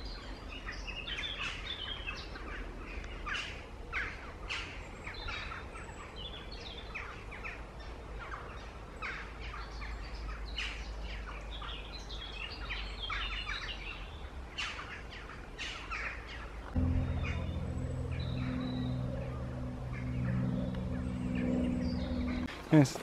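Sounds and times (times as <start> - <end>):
songbirds singing: 0.0 - 22.5
low steady rumble: 16.7 - 22.5.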